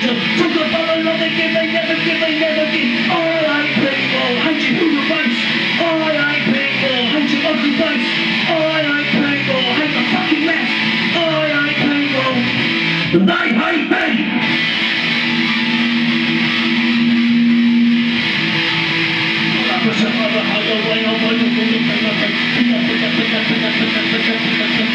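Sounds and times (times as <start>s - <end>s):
guitar bending notes: 0.0s - 24.9s.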